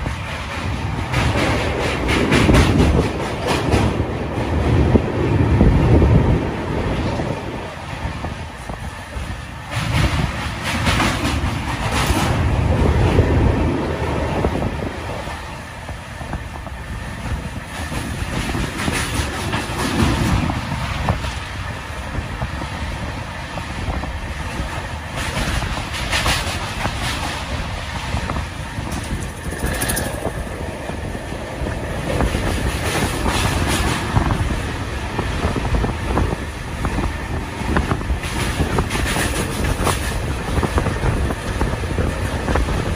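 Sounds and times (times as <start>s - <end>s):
train wheels rumbling on rails: 0.0s - 42.9s
sharp clacks: 28.9s - 30.4s.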